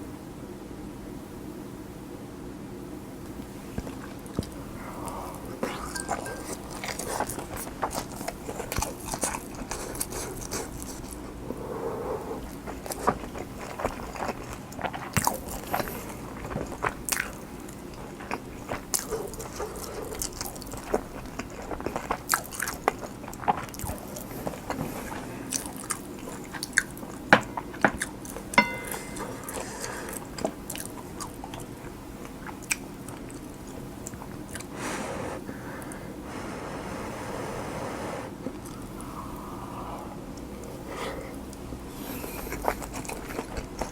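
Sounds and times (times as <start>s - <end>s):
wet chewing and mouth clicks: 12.4s - 28.5s, 42.2s - 43.9s.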